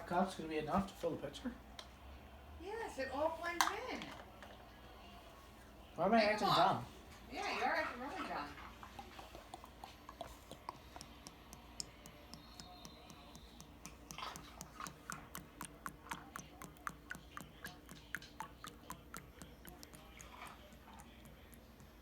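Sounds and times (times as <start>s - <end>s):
faint steady hum: 0.0s - 22.0s
light clicks and taps: 8.9s - 22.0s.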